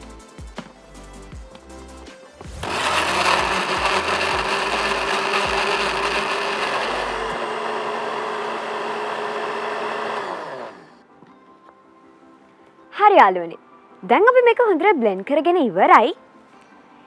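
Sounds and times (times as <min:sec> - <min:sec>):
electric blender running: 0:02.5 - 0:11.0.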